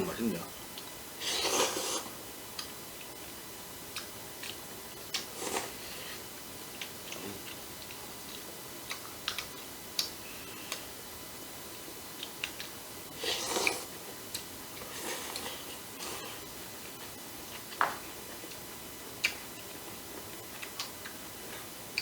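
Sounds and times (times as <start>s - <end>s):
quiet chewing of noodles: 3.9s - 11.0s, 11.8s - 22.0s.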